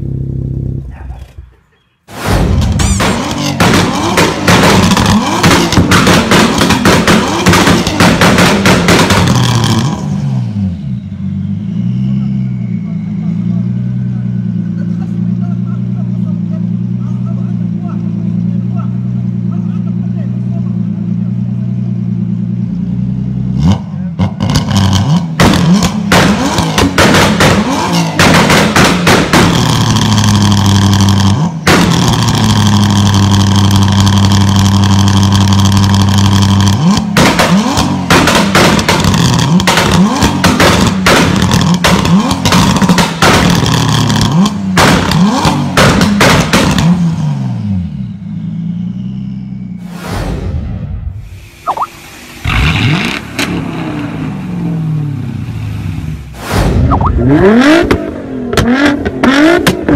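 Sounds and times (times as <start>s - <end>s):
exhaust pops and bangs: 2.1s - 10.0s, 24.2s - 47.0s, 56.3s - 59.9s
car engine revving hard: 3.0s - 10.7s, 23.5s - 48.0s, 51.3s - 59.9s.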